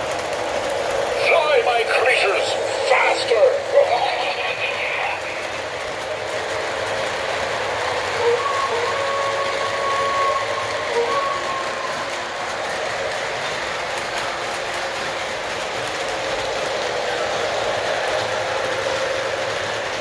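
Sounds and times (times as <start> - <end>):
model train running noise: 0.0 - 20.0
model train whistle: 8.1 - 12.4.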